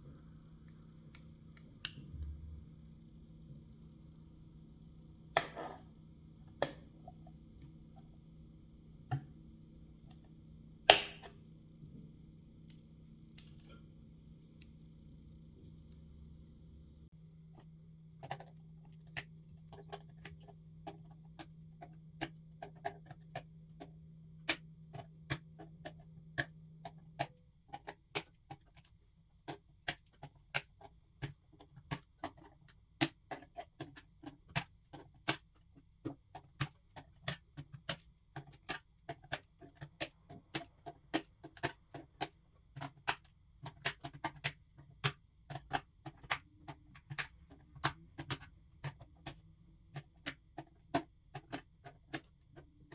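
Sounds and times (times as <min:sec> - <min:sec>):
low steady hum: 0:00.0 - 0:29.9.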